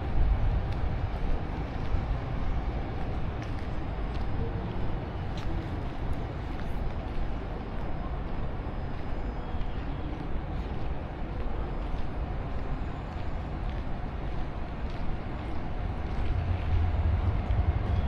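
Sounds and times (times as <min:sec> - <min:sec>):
low vehicle rumble: 0:15.7 - 0:18.0.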